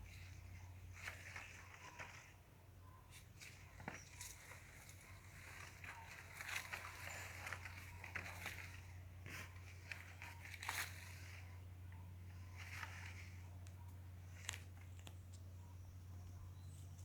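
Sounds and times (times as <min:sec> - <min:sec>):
small crackles and clicks: 0:03.1 - 0:15.5.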